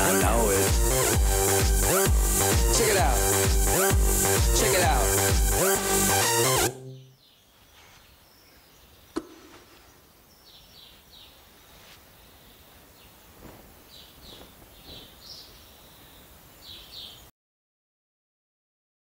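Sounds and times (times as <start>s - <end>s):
high bird chirps: 14.0s - 15.8s.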